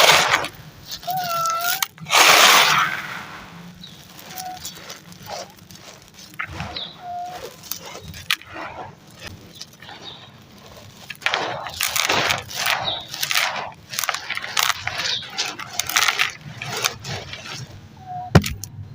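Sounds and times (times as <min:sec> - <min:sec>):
gritty material being crushed: 0:00.0 - 0:18.9.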